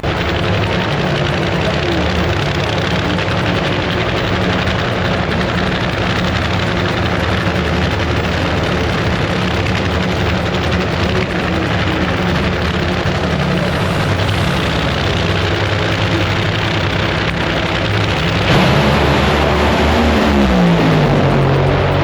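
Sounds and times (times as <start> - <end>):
drag racing car engines: 0.0 - 22.0.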